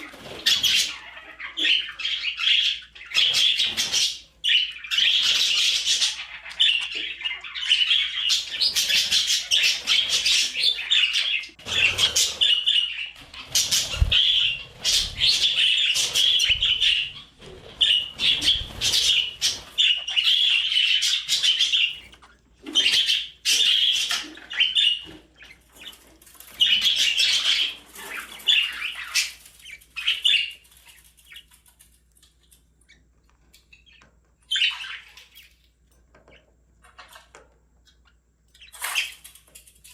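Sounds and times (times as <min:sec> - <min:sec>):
budgerigar chirping: 0:17.8 - 0:26.0.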